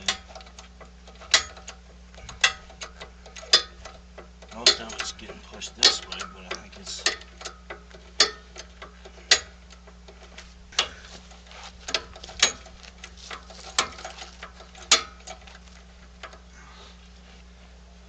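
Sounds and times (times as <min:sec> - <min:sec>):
sharp clicks and knocks: 0:00.0 - 0:16.5
steady low hum: 0:00.0 - 0:18.0.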